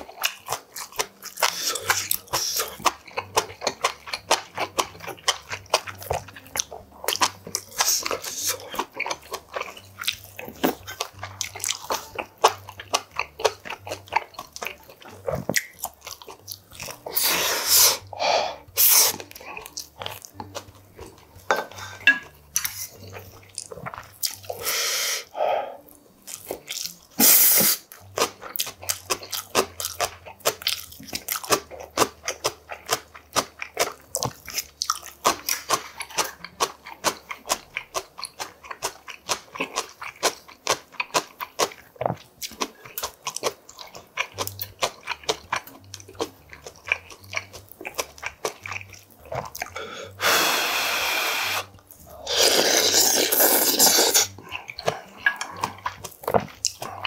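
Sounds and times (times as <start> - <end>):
man chewing food: 0.0 - 57.0
slurping soup: 1.3 - 9.9, 16.9 - 19.8, 21.4 - 25.8, 27.1 - 28.4, 48.8 - 57.0.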